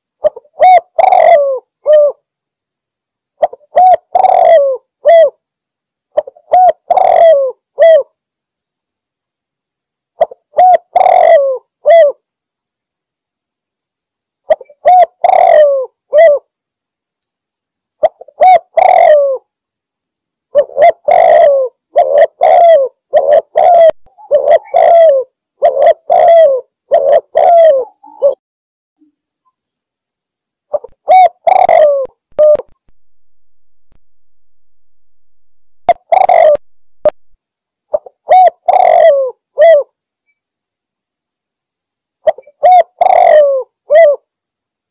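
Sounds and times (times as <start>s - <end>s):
dove cooing: 0.2s - 2.2s, 3.4s - 5.4s, 6.2s - 8.1s, 10.2s - 12.2s, 14.5s - 16.5s, 18.0s - 19.4s, 20.5s - 28.4s, 30.7s - 32.7s, 35.9s - 37.2s, 37.9s - 39.9s, 42.3s - 44.2s.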